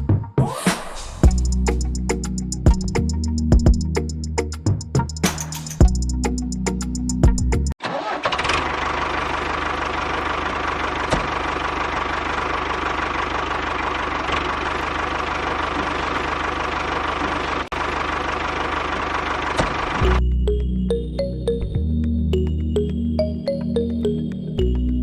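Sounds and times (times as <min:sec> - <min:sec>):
music: 0:00.0 - 0:07.8, 0:20.0 - 0:25.0
small engine knocking: 0:08.3 - 0:20.1.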